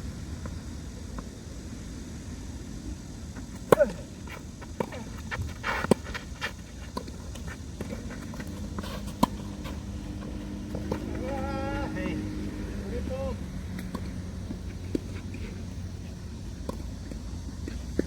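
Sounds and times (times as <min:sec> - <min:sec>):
tennis ball hit by racket: 0:03.6 - 0:04.0, 0:04.8 - 0:06.2, 0:07.8 - 0:12.8, 0:13.7 - 0:15.5
footfalls and shoe scuffs: 0:03.7 - 0:12.3.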